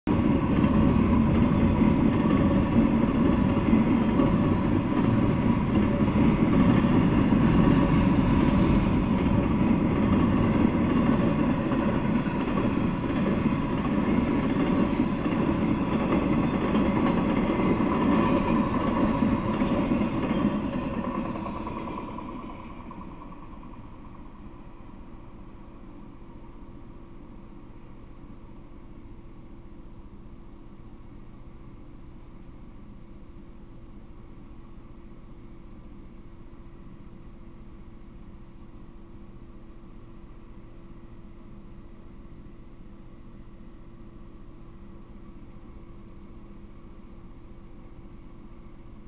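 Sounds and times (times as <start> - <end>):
freight train wheels rumbling: 0.1 - 26.6.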